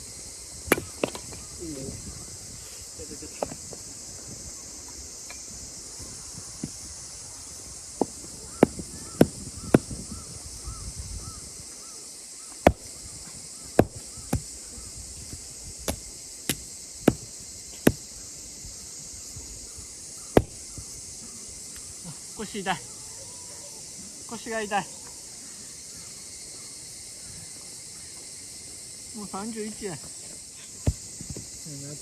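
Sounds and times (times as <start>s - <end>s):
night insects chorus: 0.0s - 32.0s
firewood being chopped: 0.7s - 1.5s, 8.0s - 10.1s, 12.6s - 13.1s, 13.8s - 14.6s, 15.3s - 18.1s, 20.3s - 20.8s.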